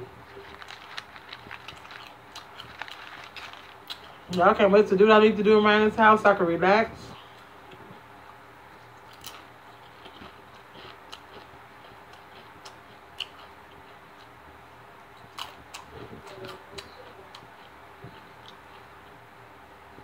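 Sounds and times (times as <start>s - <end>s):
crunching tortilla chips: 0.0s - 4.5s, 8.8s - 14.3s, 15.2s - 18.9s
faint steady hum: 0.0s - 20.0s.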